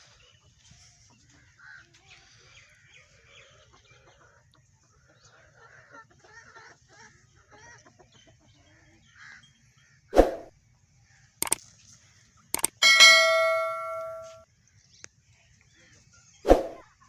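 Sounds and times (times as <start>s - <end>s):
metal object clanging: 12.6s - 14.4s
sharp clicks: 12.6s - 14.4s.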